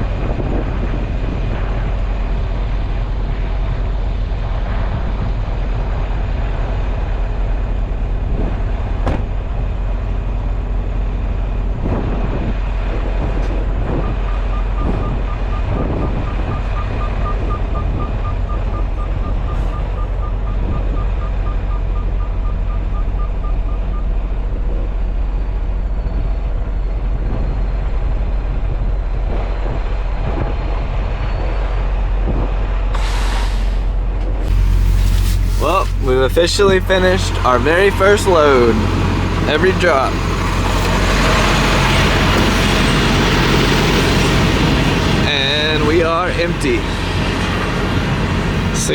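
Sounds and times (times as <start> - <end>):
diesel truck engine running: 0.0 - 48.9
short electronic beeps: 14.3 - 24.1.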